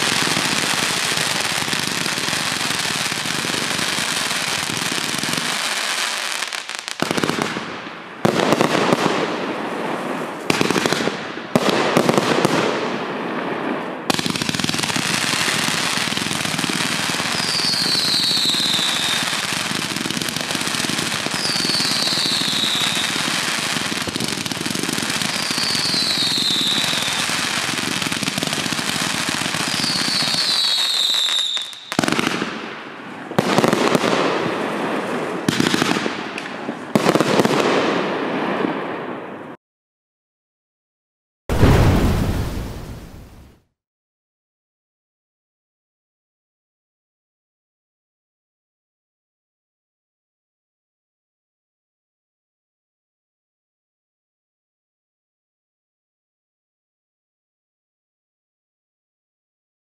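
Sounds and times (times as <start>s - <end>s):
fireworks crackling: 0.0s - 12.8s, 13.7s - 38.9s, 41.5s - 43.6s
firework launches and bursts: 14.0s - 32.7s, 41.5s - 43.6s
falling firework whistle: 17.2s - 19.5s, 21.3s - 23.3s, 25.3s - 27.8s, 29.6s - 32.2s, 41.5s - 43.6s.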